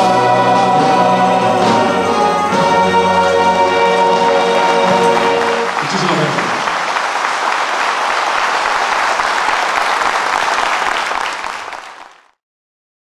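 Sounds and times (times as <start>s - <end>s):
audience applauding: 2.2s - 12.4s.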